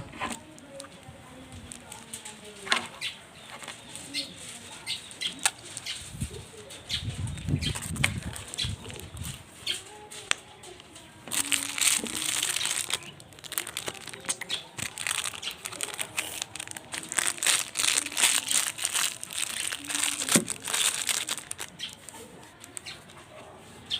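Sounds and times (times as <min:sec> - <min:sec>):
slime crackling and popping: 0:11.3 - 0:22.9.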